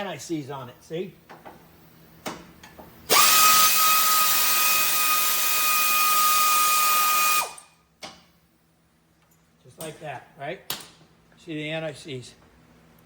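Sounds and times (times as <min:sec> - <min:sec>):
power tool whining: 0:03.1 - 0:07.7.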